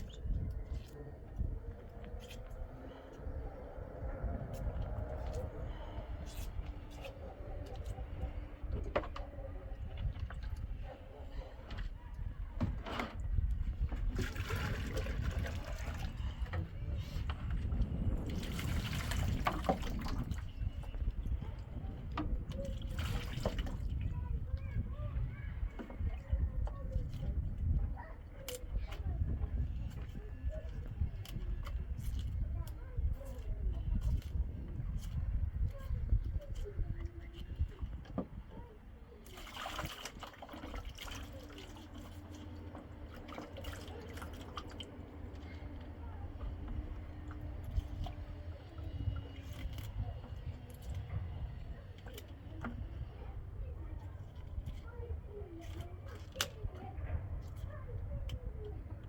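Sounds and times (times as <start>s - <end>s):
water running and splashing: 39.2s - 45.4s.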